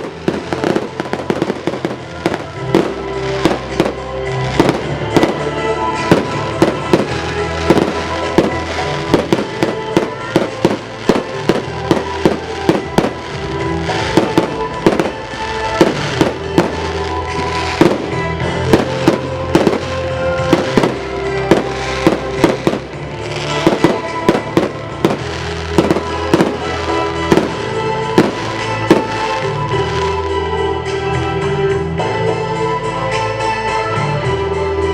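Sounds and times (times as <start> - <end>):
fireworks bangs and cracks: 0.0 - 30.5
loud show music: 0.0 - 34.9.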